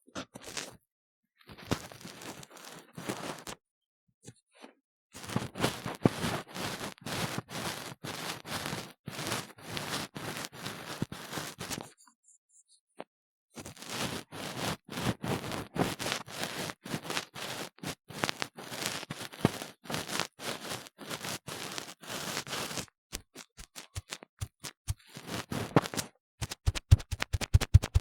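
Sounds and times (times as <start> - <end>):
ear tool scraping silicone: 13.6 - 28.0
quick sharp taps: 26.4 - 28.0.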